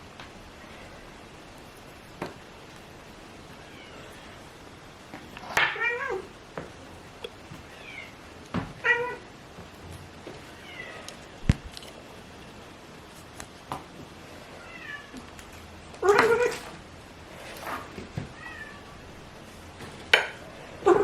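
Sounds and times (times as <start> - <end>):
cat meowing: 5.5 - 6.3, 8.8 - 9.3, 10.6 - 11.2, 14.6 - 15.2, 16.0 - 16.8, 18.3 - 19.2, 20.8 - 21.0.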